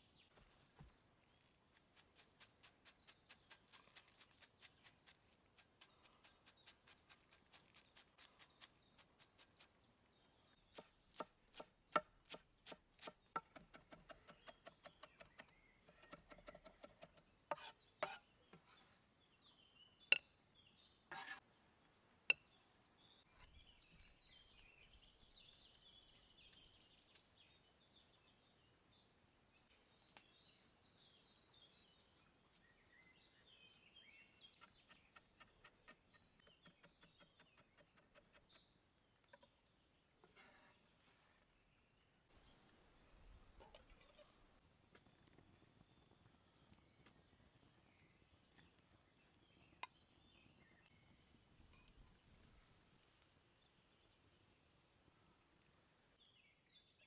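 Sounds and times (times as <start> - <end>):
faint bird chirps: 12.2 - 21.5, 22.2 - 39.6.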